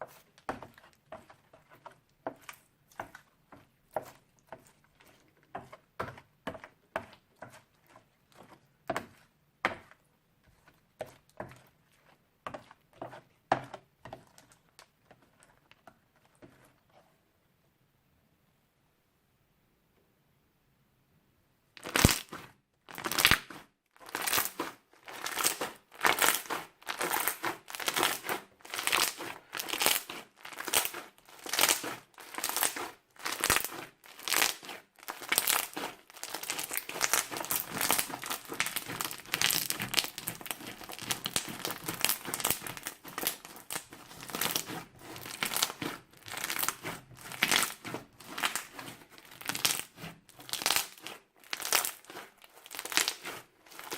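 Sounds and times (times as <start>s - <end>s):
crunchy slime squished crackling: 21.8s - 53.9s.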